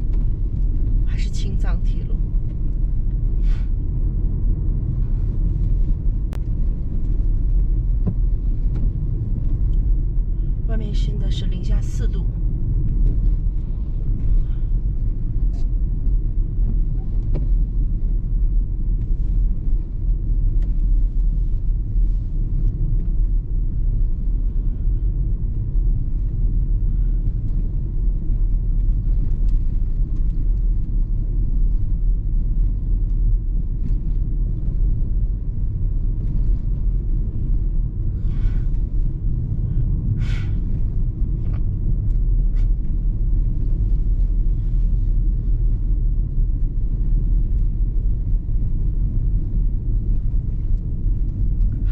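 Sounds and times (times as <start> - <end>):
car interior road rumble: 0.0 - 51.9.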